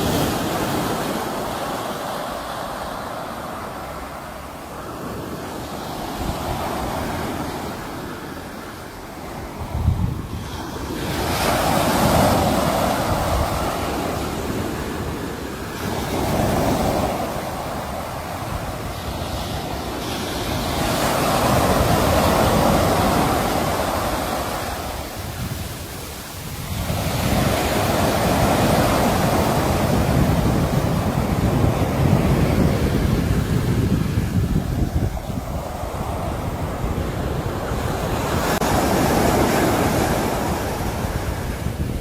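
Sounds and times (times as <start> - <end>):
sea waves washing on shore: 0.0 - 42.0.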